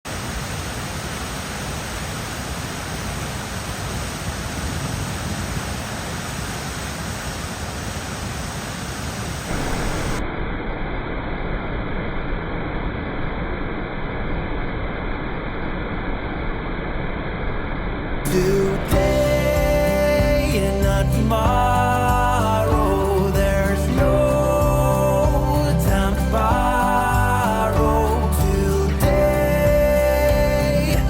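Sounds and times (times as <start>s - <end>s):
waterfall rushing: 0.1s - 10.2s, 18.3s - 31.0s.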